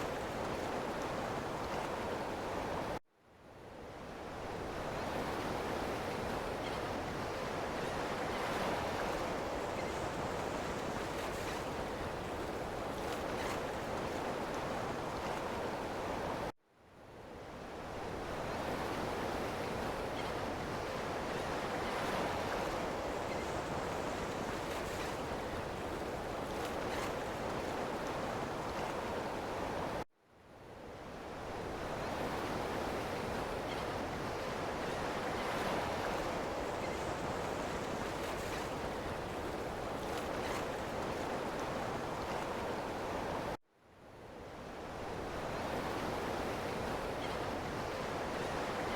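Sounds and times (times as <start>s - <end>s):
ocean waves: 0.0s - 3.0s, 17.6s - 30.0s, 31.0s - 43.6s, 44.4s - 48.9s.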